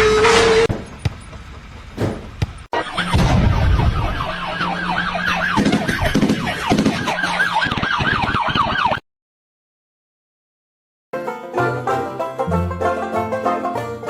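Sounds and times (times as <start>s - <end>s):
low engine hum: 0.6s - 2.7s
rapid yelping siren: 2.7s - 9.0s.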